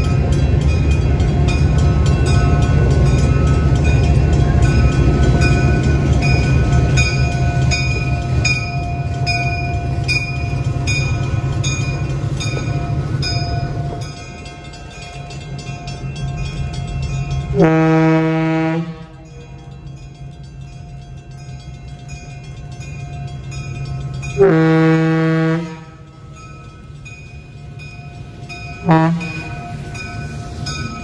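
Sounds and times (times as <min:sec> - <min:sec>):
train bell ringing: 0:00.0 - 0:31.0
train locomotive rumble: 0:00.0 - 0:31.0
train horn blast: 0:17.6 - 0:19.3, 0:24.4 - 0:26.1, 0:28.8 - 0:29.6.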